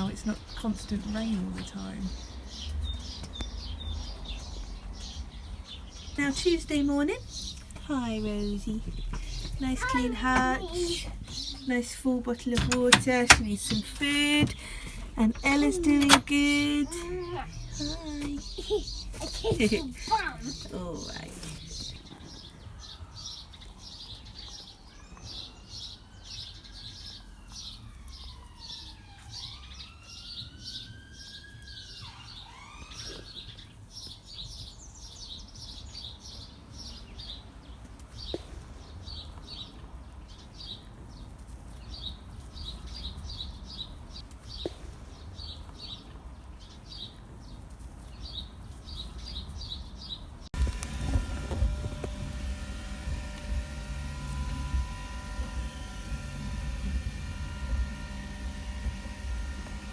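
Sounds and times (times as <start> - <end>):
bird chirping: 0.0 - 37.5.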